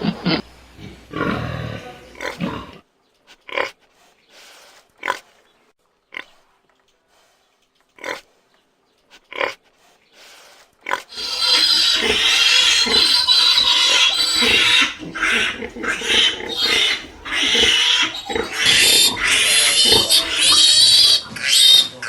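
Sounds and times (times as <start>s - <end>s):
pig grunting: 0.8s - 2.8s, 11.1s - 21.6s.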